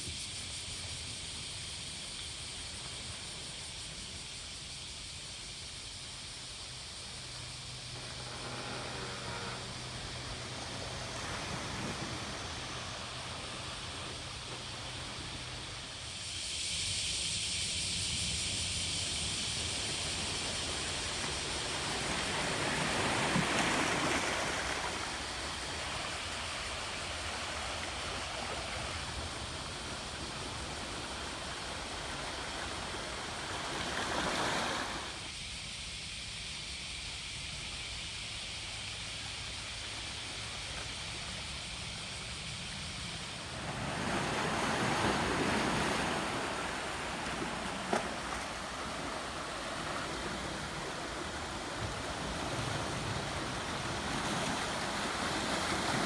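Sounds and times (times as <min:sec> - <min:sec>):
waves washing onto rocky shore: 0:19.8 - 0:35.3, 0:43.4 - 0:56.0.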